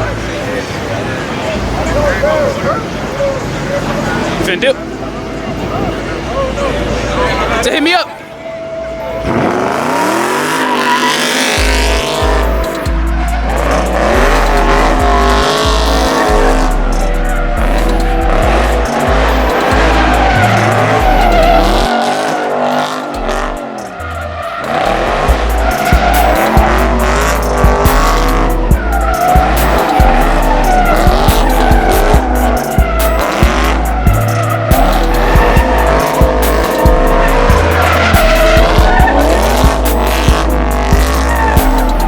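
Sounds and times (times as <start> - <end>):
car tyres squealing: 0.0 - 42.0
music with heavy bass beat: 9.5 - 42.0.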